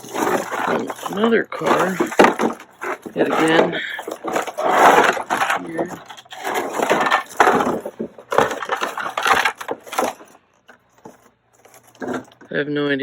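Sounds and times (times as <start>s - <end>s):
plastic car parts rattling: 0.0s - 12.5s.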